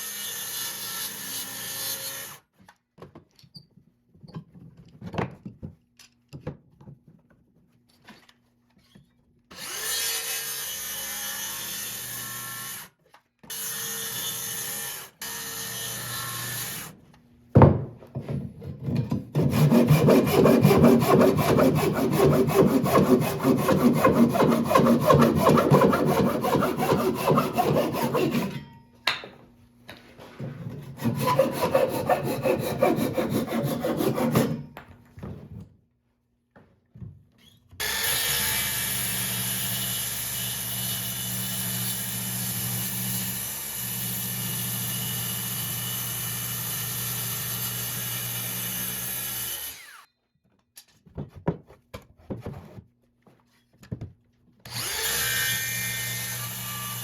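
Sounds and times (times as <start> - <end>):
hand sawing strokes: 19.3 - 28.7, 30.2 - 34.8.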